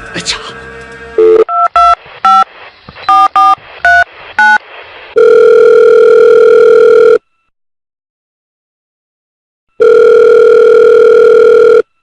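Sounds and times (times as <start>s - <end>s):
steady telephone tone: 1.2s - 2.5s, 5.2s - 7.4s, 9.7s - 12.0s.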